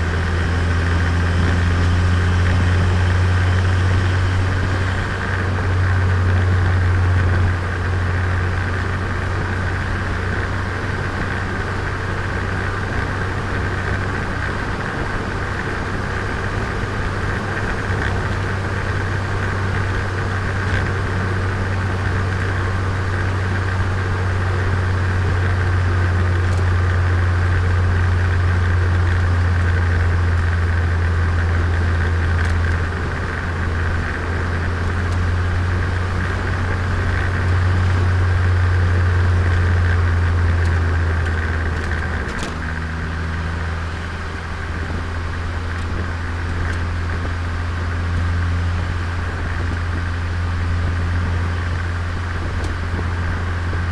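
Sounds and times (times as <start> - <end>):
car engine and exhaust drone: 0.0 - 53.9.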